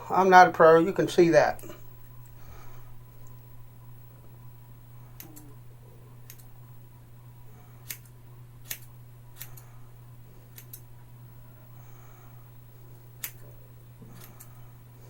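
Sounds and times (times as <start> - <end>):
steady low hum: 0.0 - 15.0
scissors snipping hair: 5.2 - 5.6, 6.3 - 6.5, 7.8 - 9.7, 10.5 - 10.9, 13.2 - 13.4, 14.1 - 14.5.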